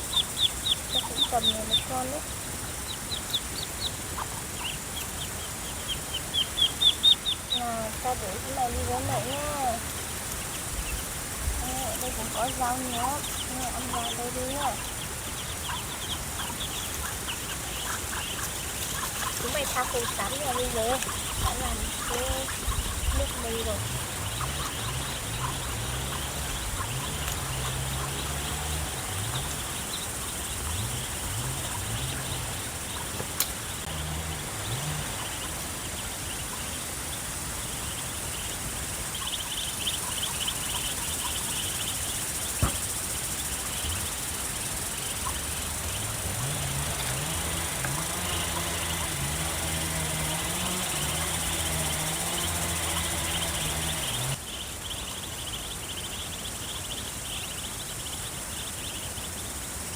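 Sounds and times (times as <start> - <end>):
low droning hum: 0.0 - 42.1
insects chirring: 0.0 - 59.9
sharp clicks: 33.1 - 33.6.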